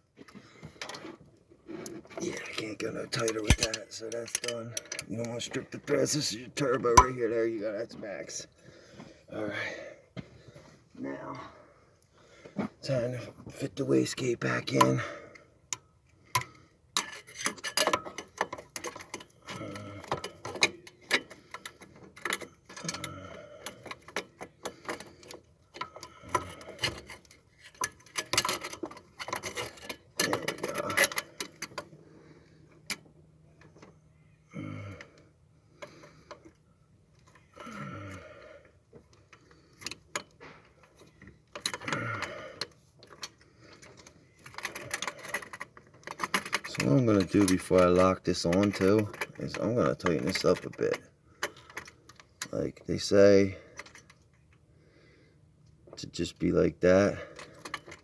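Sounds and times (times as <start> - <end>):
metallic clicks and clinks of tools: 3.2 - 5.1, 57.3 - 58.0
metal tools clinking: 3.3 - 4.5.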